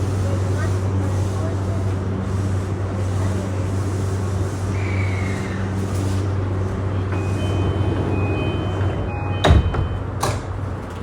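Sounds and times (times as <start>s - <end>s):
train low hum and rumble: 0.0s - 11.0s.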